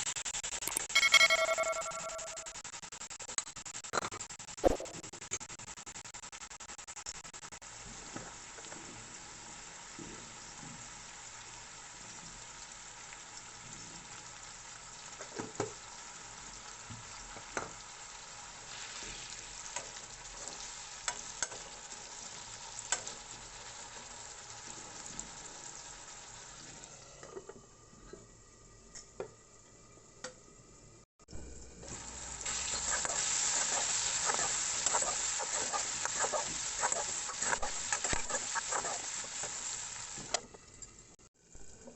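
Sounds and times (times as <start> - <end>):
potatoes sizzling in a pan: 7.6 - 27.8, 31.6 - 41.9
spatula scraping and knocking pan: 32.5 - 39.6.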